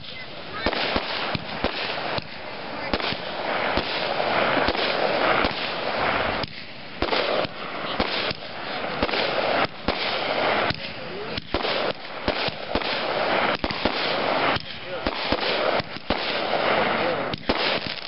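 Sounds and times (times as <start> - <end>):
continuous noisy rush: 0.0 - 18.0
fireworks bangs: 0.0 - 18.0.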